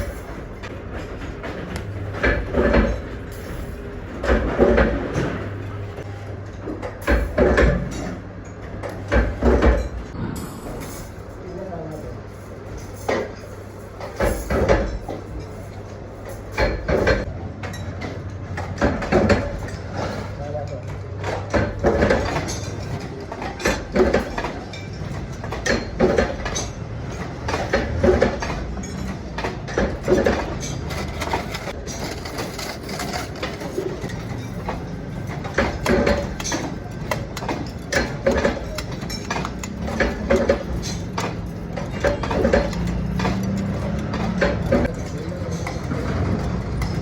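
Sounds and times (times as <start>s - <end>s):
recurring knocks: 37.4s - 44.9s.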